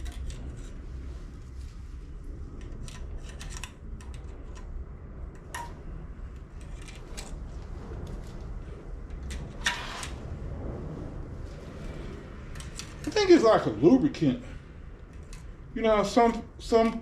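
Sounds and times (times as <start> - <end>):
clicks of small parts and tools: 0.0 - 0.7, 2.6 - 4.7
steady low hum: 0.0 - 17.0.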